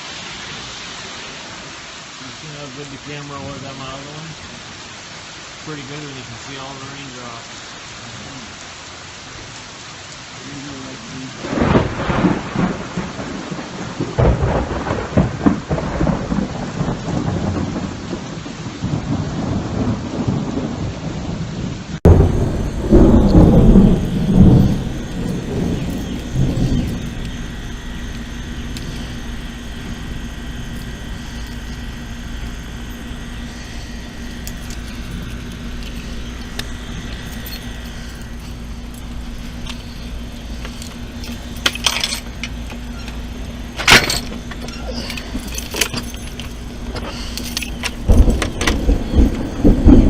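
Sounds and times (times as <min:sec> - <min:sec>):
rain falling: 0:00.0 - 0:50.0
rolling thunder: 0:11.4 - 0:44.7, 0:47.8 - 0:50.0
faint hum: 0:22.1 - 0:50.0.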